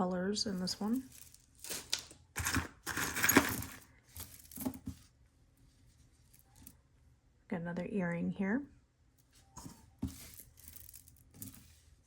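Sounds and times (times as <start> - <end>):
jewelry clinking and rattling: 0.5 - 5.0, 10.0 - 11.8.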